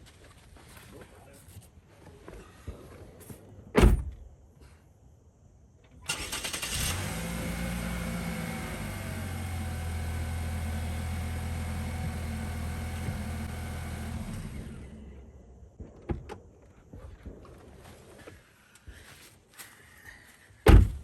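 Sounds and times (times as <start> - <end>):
car engine idling: 6.1 - 15.6.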